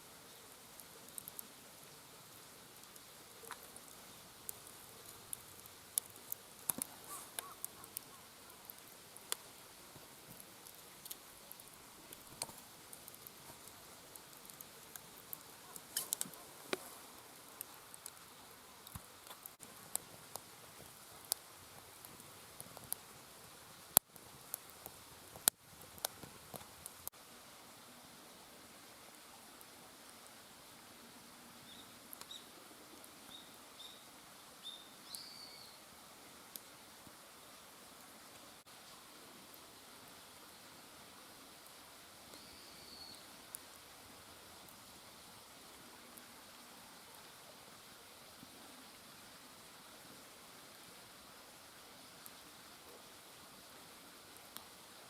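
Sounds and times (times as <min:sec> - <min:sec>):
faint steady hiss: 0:00.0 - 0:55.0
firewood crackling and popping: 0:00.3 - 0:27.1.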